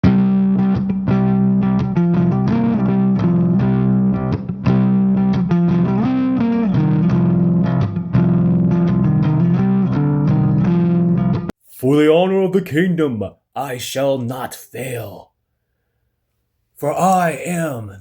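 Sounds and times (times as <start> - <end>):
distorted electric guitar music: 0.0 - 11.5
bass: 0.0 - 13.4.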